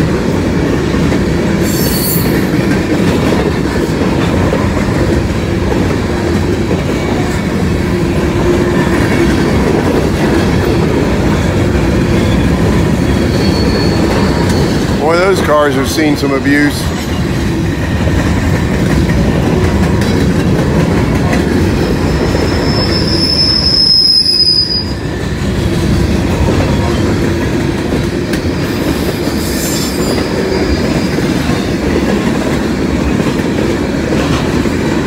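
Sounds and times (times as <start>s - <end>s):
freight train wheels rumbling: 0.0s - 35.0s
high-pitched wheel squeal: 1.6s - 2.5s, 12.2s - 15.0s, 22.0s - 25.1s.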